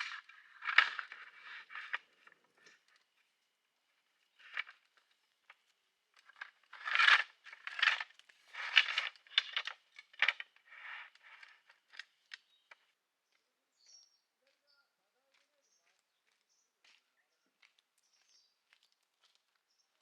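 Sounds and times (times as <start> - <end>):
rustling and scraping handling: 0.0 - 12.9.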